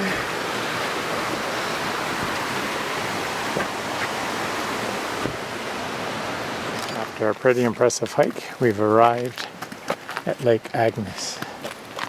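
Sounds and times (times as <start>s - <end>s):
waterfall rushing: 0.0s - 9.1s.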